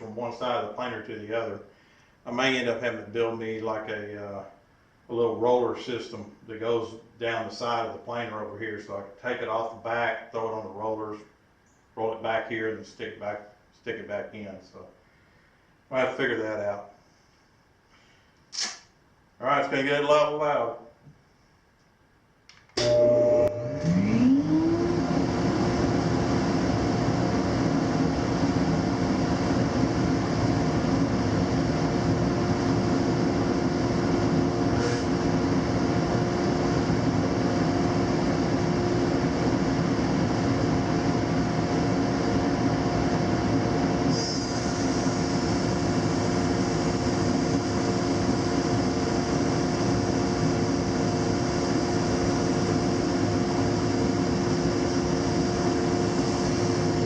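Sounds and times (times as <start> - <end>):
planer running with loud hum: 22.8 - 57.0.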